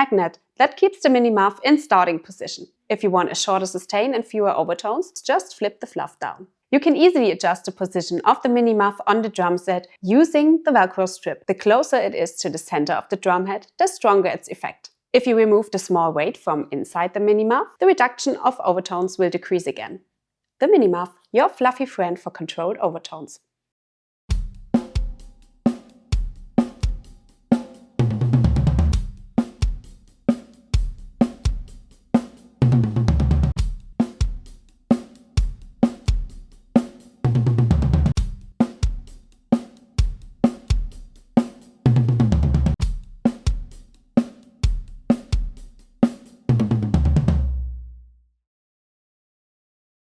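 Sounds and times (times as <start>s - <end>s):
acoustic drum kit playing: 24.3s - 47.8s.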